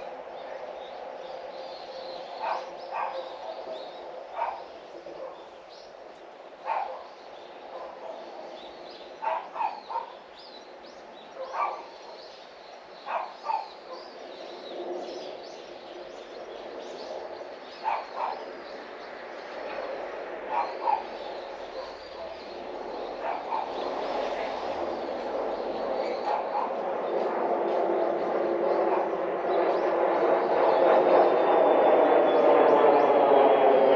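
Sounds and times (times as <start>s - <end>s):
small birds chirping: 0.0s - 32.6s
outdoor background hum: 0.0s - 33.9s
distant dog barking: 2.4s - 5.5s, 6.6s - 8.5s, 9.2s - 10.3s, 11.3s - 12.3s, 13.0s - 14.2s, 17.8s - 18.5s, 19.6s - 27.0s, 28.7s - 29.4s.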